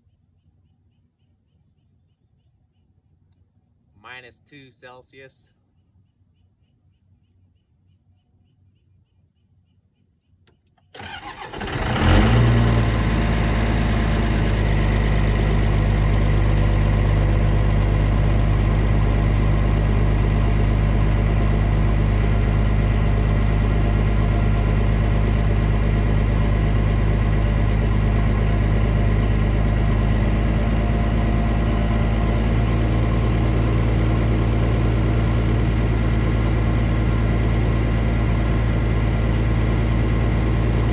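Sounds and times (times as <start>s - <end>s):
diesel engine cranking and idling: 10.4s - 40.9s.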